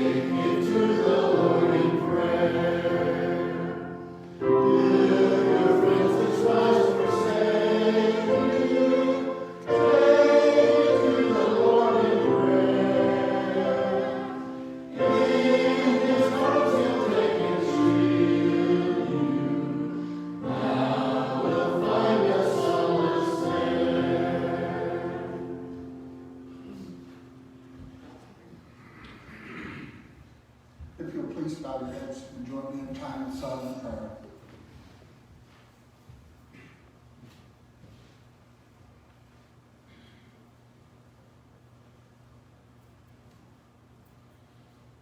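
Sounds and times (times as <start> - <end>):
voices singing a hymn: 0.0 - 28.0.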